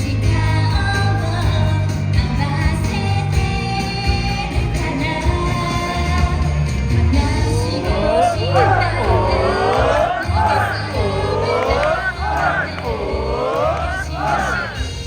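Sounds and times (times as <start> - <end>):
live pop band music: 0.0 - 15.0
heavy bass: 6.2 - 15.0
person singing: 7.2 - 14.9.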